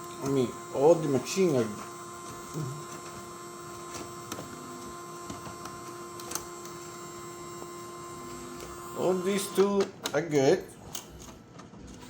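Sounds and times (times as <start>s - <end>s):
printer humming: 0.0s - 12.0s.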